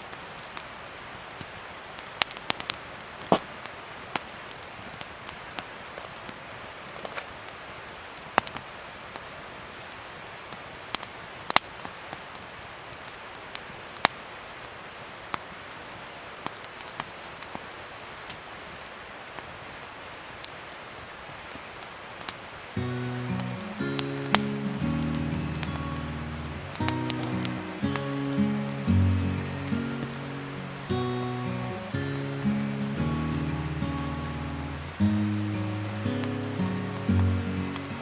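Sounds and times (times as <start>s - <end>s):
wood fire crackling: 15.8s - 38.0s.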